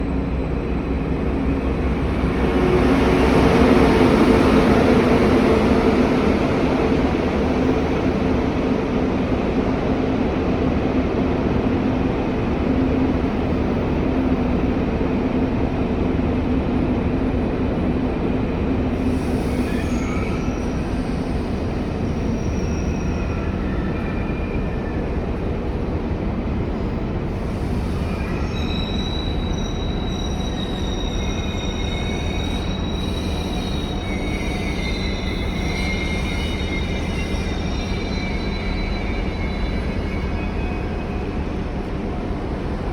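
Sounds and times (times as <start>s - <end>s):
train wheel squeals: 0.0s - 8.5s, 18.9s - 25.9s, 27.3s - 42.9s
high-speed train rumbling: 0.0s - 42.9s.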